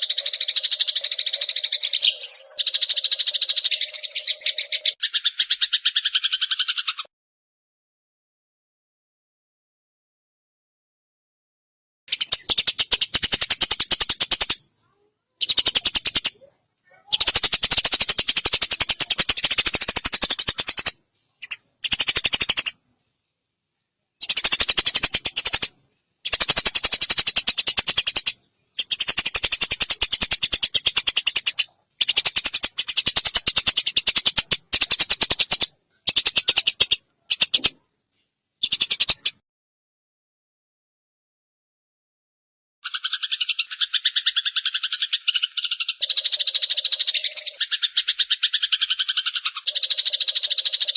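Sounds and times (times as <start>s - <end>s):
sparrows chattering harshly: 0.0s - 7.1s, 12.1s - 22.8s, 24.2s - 37.8s, 38.6s - 39.4s, 42.8s - 50.9s.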